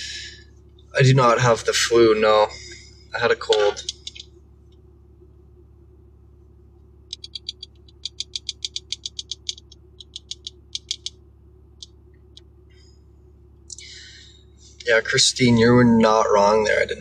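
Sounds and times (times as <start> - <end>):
truck cab hum: 0.0 - 17.0
short light clicks: 7.1 - 11.2.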